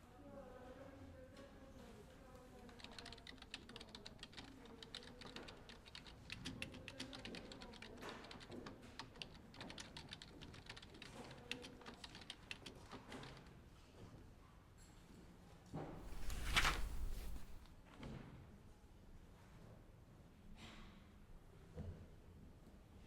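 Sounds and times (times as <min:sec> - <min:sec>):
typing on keyboard: 0:02.6 - 0:13.5.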